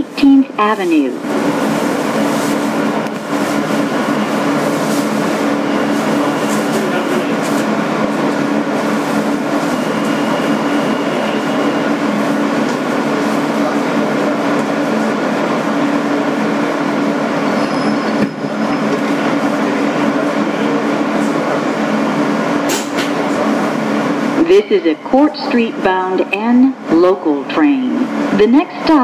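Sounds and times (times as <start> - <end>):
subway car rumble: 0.0 - 29.0.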